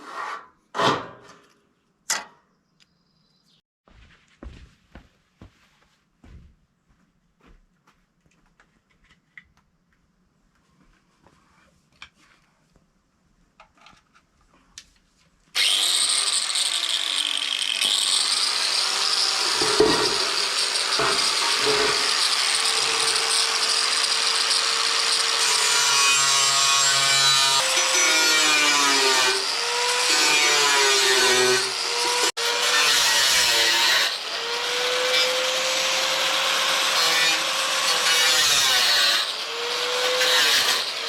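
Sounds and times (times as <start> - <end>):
power tool cutting wood: 15.6 - 41.0.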